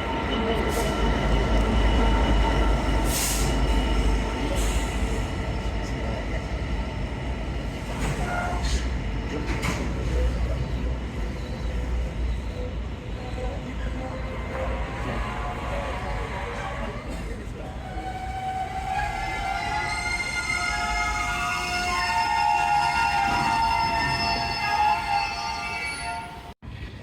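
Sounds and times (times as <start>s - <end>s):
train rumbling: 0.0s - 27.0s
train wheel squeaks: 7.8s - 16.0s, 18.2s - 26.5s.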